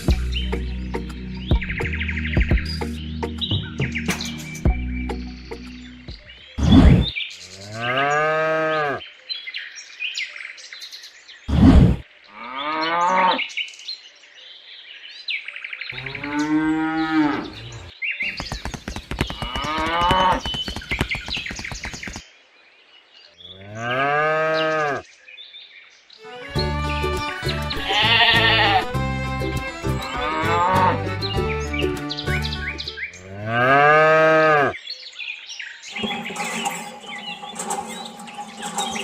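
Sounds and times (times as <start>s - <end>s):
cows mooing: 16.0s - 17.9s, 19.4s - 20.5s, 23.7s - 25.0s, 30.1s - 31.1s, 33.2s - 34.8s
rapid buzzing rattle: 18.3s - 22.2s, 35.9s - 39.0s.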